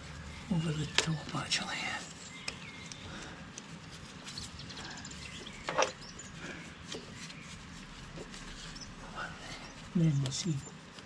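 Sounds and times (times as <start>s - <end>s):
hoses knocking and rubbing: 5.4s - 10.4s.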